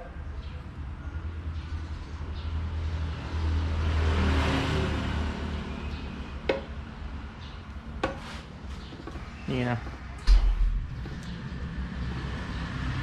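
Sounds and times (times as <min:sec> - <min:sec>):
road vehicle passing: 0:00.2 - 0:13.0.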